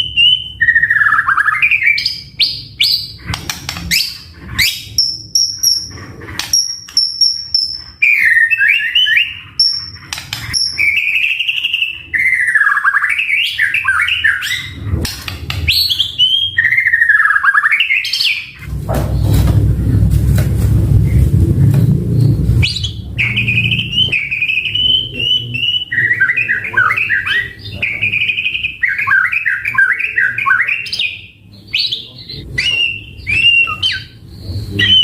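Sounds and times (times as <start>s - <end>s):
bird whistling and warbling: 0.0s - 18.6s, 22.1s - 35.0s
low rumbling noise: 18.5s - 26.8s.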